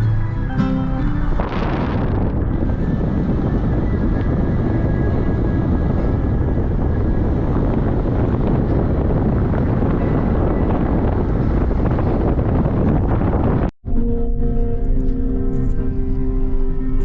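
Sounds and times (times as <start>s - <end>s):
wind on microphone: 0.0s - 13.8s
vehicle low rumble: 0.0s - 17.0s.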